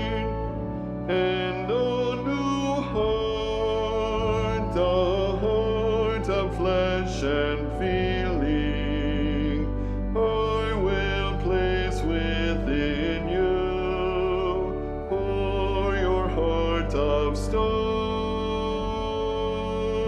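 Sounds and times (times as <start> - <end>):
choir singing a hymn: 0.0 - 20.0
sustained low accompaniment: 0.0 - 20.0.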